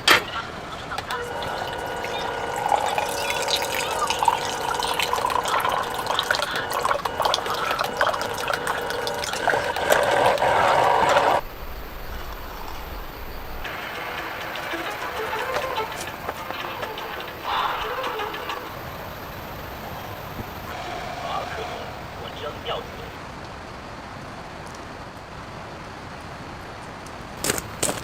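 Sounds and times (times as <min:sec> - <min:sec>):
water running and dripping: 0:01.0 - 0:20.8.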